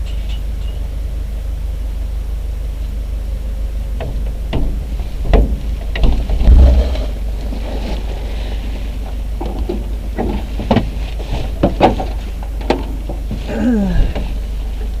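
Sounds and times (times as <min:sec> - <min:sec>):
low rumble: 0:00.9 - 0:10.6
sharp knocks and clunks: 0:04.0 - 0:07.2, 0:09.4 - 0:13.3.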